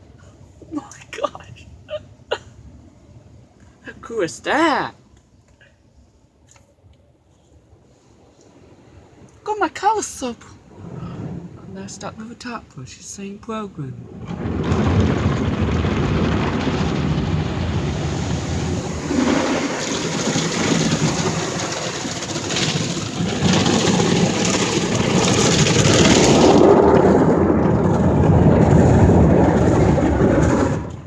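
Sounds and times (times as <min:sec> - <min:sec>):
car wash brush and water spray: 0:14.2 - 0:31.0.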